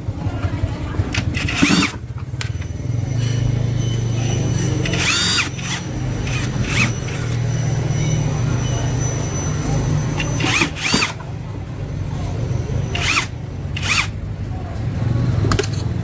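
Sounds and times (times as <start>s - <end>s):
power tool motor running: 1.0s - 11.3s, 12.6s - 14.2s
short high squealing whines: 1.4s - 11.3s.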